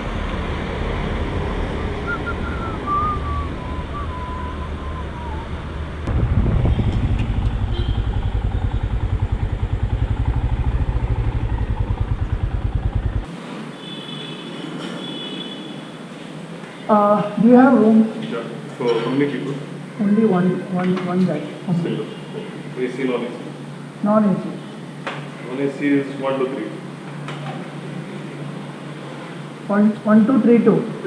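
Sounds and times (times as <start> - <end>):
road noise hiss: 0.0 - 20.7, 21.3 - 31.0
motorcycle engine idling: 5.4 - 13.3.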